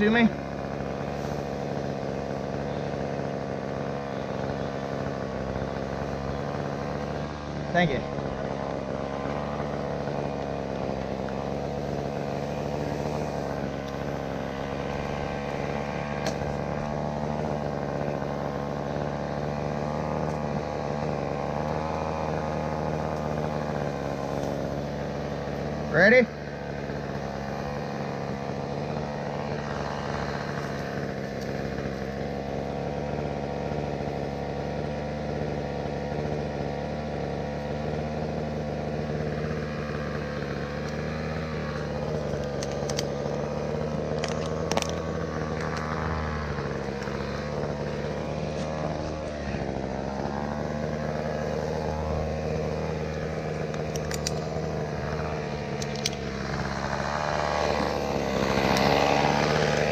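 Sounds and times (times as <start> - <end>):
engine idling: 0.0 - 59.9
sharp clicks: 41.7 - 43.5, 53.5 - 58.0.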